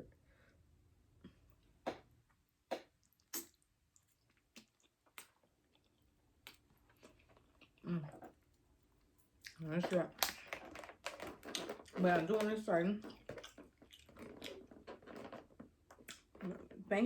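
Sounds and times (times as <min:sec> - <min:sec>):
chewing mouth sounds: 0:13.0 - 0:14.7.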